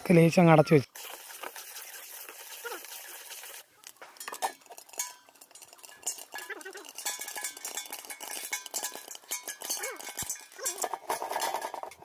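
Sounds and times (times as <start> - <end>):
kernels clinking on metal lid: 3.9 - 12.0.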